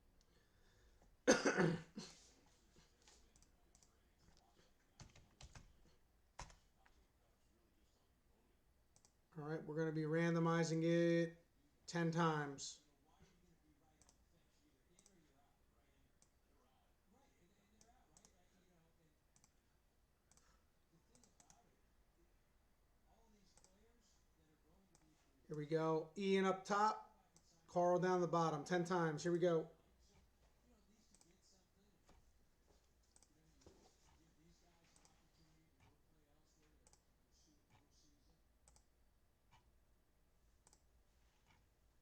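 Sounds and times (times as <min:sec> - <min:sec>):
computer mouse clicks: 0:08.9 - 0:09.2, 0:19.4 - 0:19.6, 0:20.3 - 0:20.5, 0:21.1 - 0:21.6, 0:23.5 - 0:23.8, 0:36.8 - 0:37.1, 0:38.6 - 0:38.9, 0:40.6 - 0:41.6.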